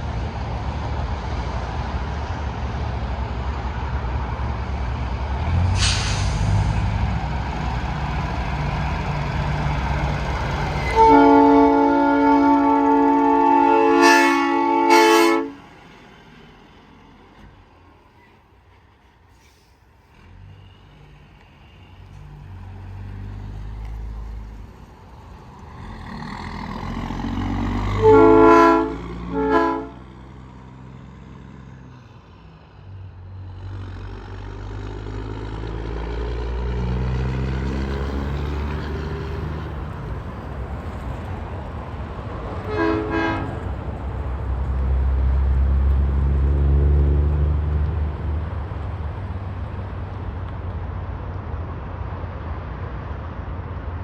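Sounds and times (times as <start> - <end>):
trucks passing on highway: 0.0 - 54.0
truck air horn blasts: 10.8 - 15.7, 27.7 - 30.1, 42.7 - 43.6.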